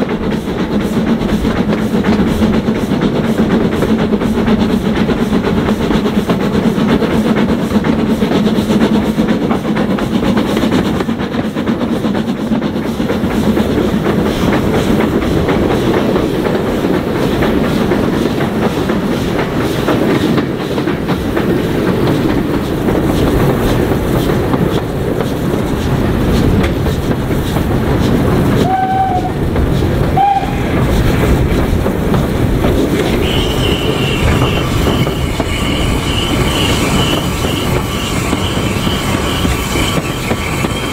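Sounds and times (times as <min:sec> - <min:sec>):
train wheels clattering: 0:00.0 - 0:40.9
wheels squealing: 0:32.8 - 0:40.9.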